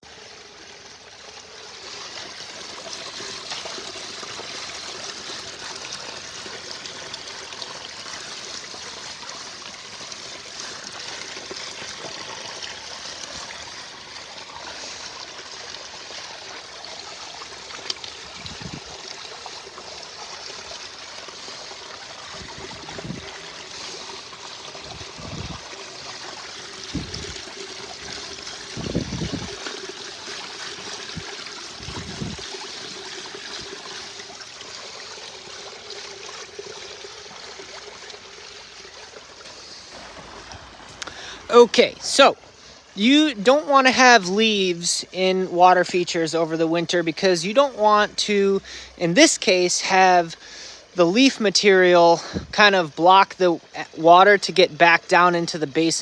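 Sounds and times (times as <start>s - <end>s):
water splashing over rocks: 0.2s - 56.0s
dull low thumps: 26.9s - 27.4s.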